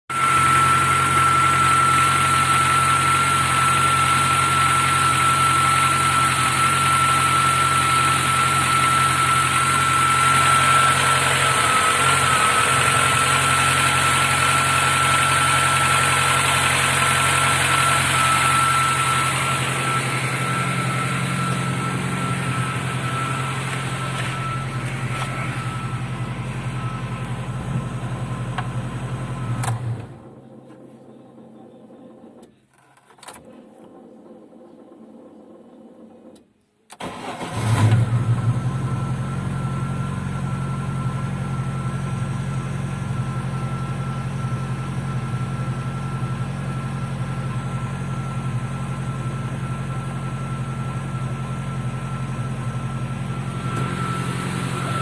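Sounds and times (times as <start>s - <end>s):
high whine: 0.2s - 30.4s, 51.9s - 55.0s
car engine idling: 0.2s - 32.7s, 37.0s - 55.0s.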